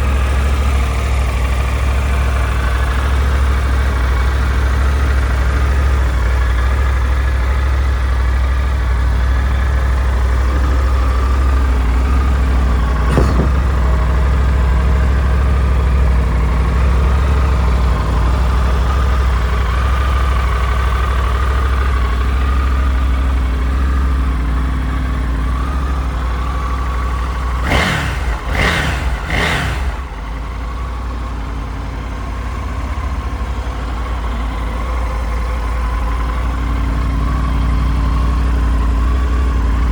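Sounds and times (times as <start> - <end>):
motorcycle engine idling: 0.0 - 39.9
engine revving bursts: 10.2 - 15.1, 27.3 - 30.8.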